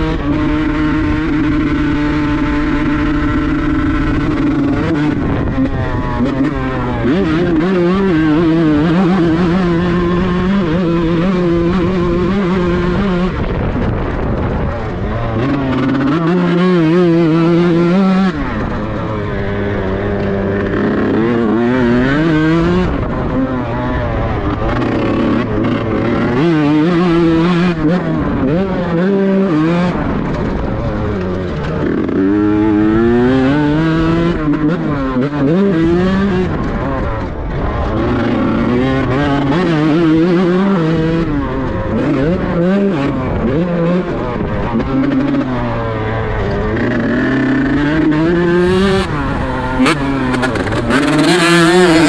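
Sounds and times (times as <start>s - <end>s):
two-stroke motorcycle engine revving: 0.0s - 52.0s.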